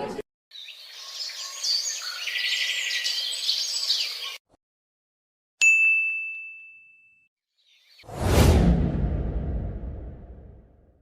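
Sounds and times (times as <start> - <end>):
birds chirping and trilling: 0.0 - 4.5, 7.6 - 8.1
bell ding: 5.6 - 7.3.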